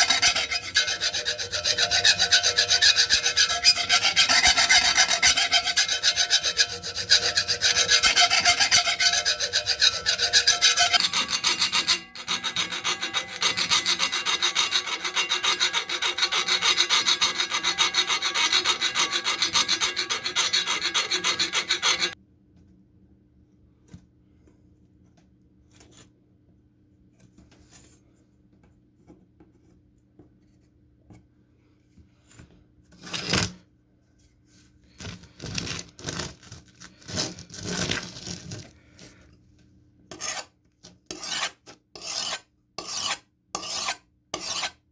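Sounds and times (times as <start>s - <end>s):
abrasive rubbing on knife blade: 0.0s - 22.2s.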